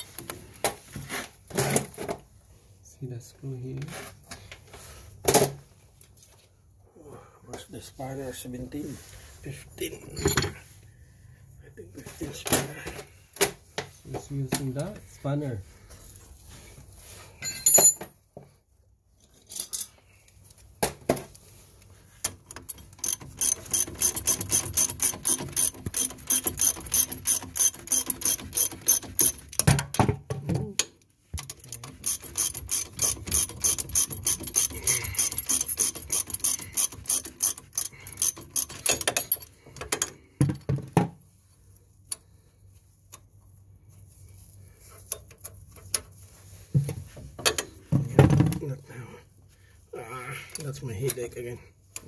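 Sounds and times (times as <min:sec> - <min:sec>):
ratchet spanner clicking: 0:22.3 - 0:29.6, 0:31.4 - 0:40.1.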